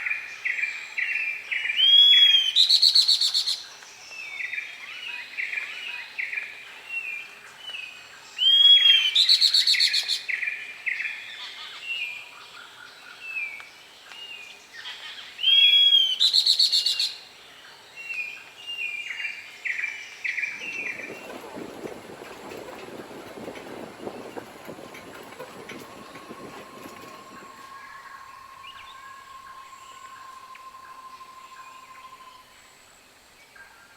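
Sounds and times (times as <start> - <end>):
low rushing noise: 20.5 - 32.9.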